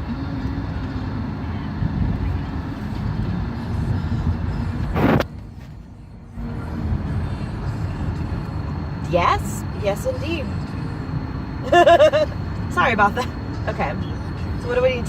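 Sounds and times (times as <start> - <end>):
car road noise rumble: 0.0 - 15.0
loud whoosh: 4.2 - 5.5.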